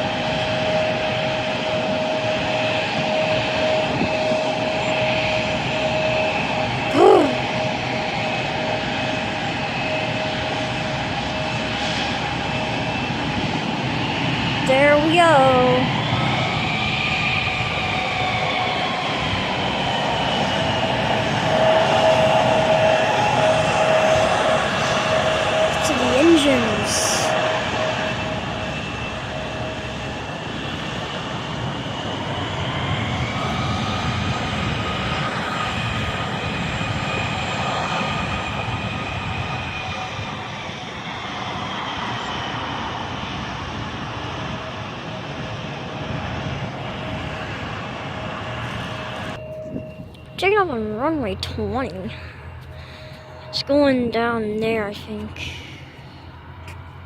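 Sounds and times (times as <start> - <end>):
distant jet engines whining: 0.0 - 57.0.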